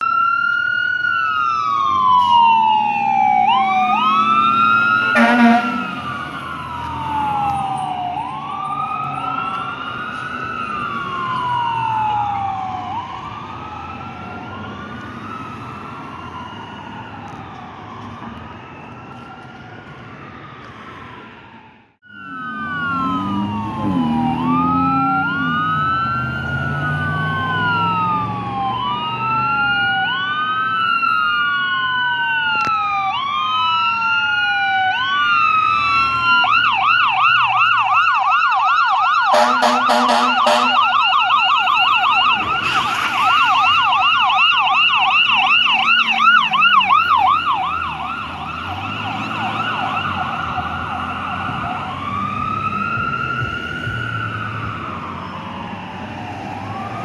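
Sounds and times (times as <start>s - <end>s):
fire engine siren wailing: 0.0s - 57.0s
diesel engine rumbling: 1.7s - 14.8s, 35.0s - 57.0s
air horn blasts: 5.0s - 6.4s, 39.3s - 41.0s.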